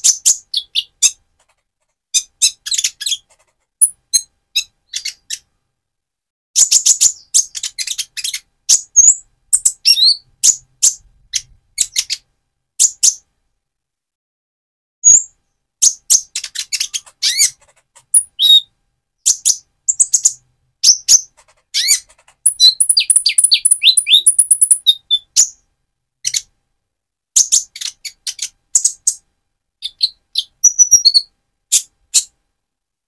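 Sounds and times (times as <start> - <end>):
bird trill: 0.0 - 1.2, 6.6 - 12.2, 15.0 - 25.6, 29.8 - 32.3
bird singing high chirps: 6.6 - 12.2, 15.0 - 25.6, 29.8 - 32.3.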